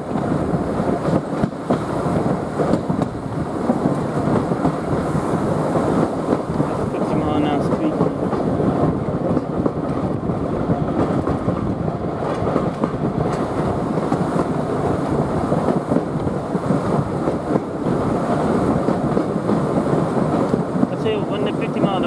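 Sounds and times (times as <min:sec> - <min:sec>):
train wheels rumbling and clattering: 0:00.0 - 0:22.0.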